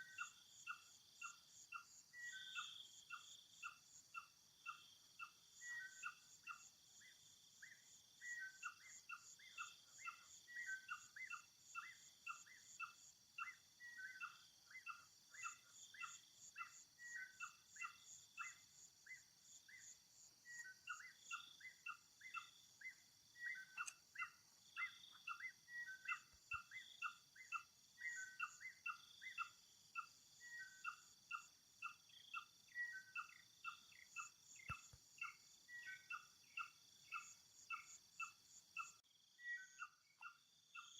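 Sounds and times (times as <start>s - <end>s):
bird chirping: 0.0s - 40.9s.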